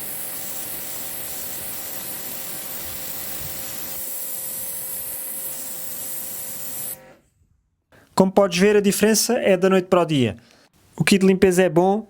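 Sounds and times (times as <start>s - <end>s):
water jet spraying on paving: 0.0s - 7.0s
pressure washer motor whine: 0.0s - 7.2s.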